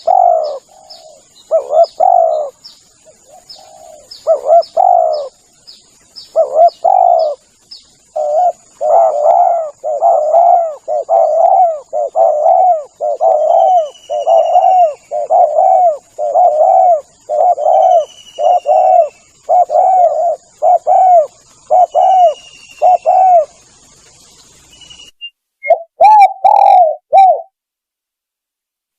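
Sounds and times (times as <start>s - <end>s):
dove cooing: 0.0s - 5.4s, 6.2s - 23.7s, 25.6s - 27.5s
bird chirps and trills: 0.0s - 27.5s.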